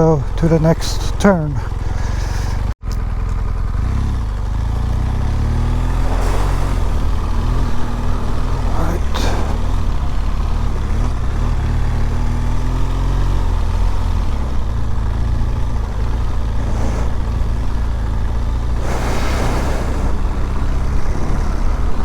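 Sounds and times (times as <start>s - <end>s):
motorcycle engine running: 0.0s - 22.0s
bursts of hiss: 16.6s - 17.5s, 18.8s - 20.2s.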